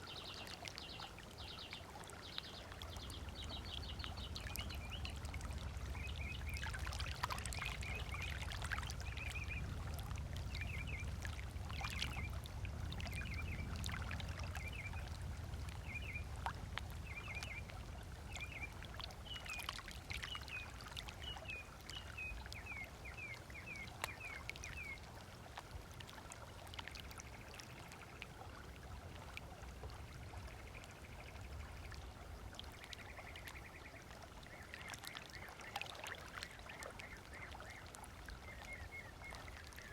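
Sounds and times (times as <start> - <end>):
small waves lapping on shore: 0.0 - 39.9
low steady rumble: 2.6 - 19.6.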